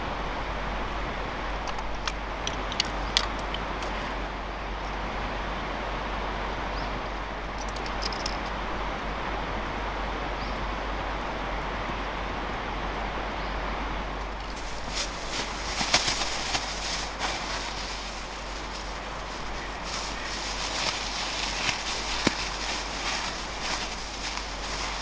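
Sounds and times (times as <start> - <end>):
campfire hissing: 14.3 - 25.0.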